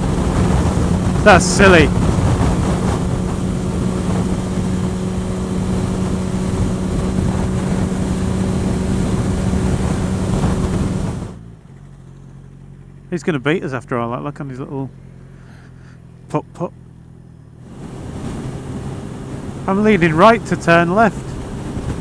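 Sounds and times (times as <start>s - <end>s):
wind rushing on microphone: 0.0s - 11.4s, 17.7s - 22.0s
motorcycle engine hum: 0.0s - 22.0s.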